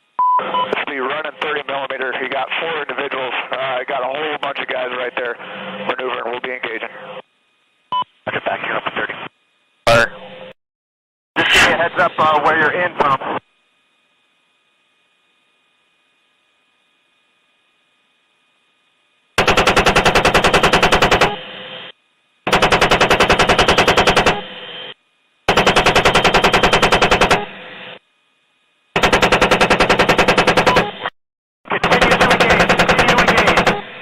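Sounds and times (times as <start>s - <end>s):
chain gun firing bursts: 19.4s - 21.3s, 22.5s - 24.4s, 25.5s - 27.4s, 29.0s - 30.8s, 31.9s - 33.8s.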